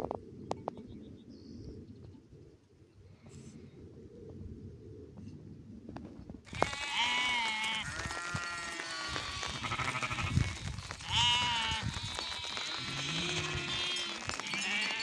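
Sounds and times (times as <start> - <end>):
sheep bleating: 6.5 - 15.0.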